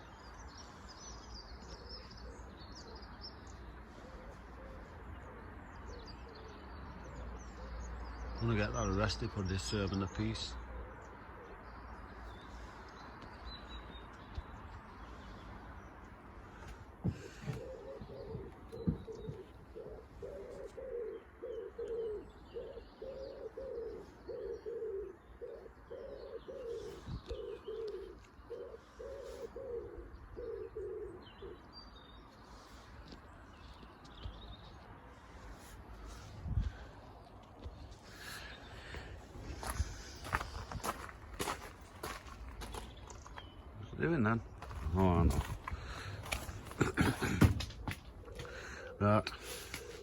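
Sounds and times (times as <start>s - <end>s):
pigeon cooing: 17.0s - 31.7s, 45.4s - 50.0s.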